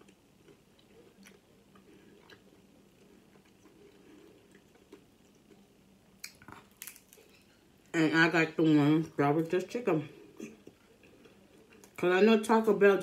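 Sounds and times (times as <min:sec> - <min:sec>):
faint chewing: 0:00.0 - 0:07.9, 0:10.1 - 0:12.1
low steady hum: 0:00.0 - 0:13.0.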